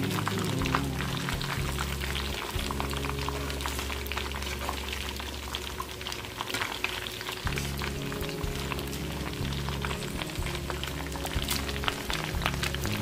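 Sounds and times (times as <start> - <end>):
background music: 0.0 - 13.0
chicken frying in hot oil: 0.0 - 13.0.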